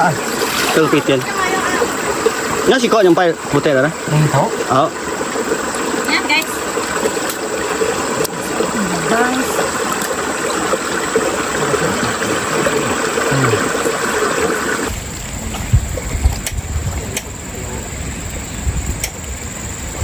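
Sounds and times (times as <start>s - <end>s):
river water rushing: 0.0s - 15.6s.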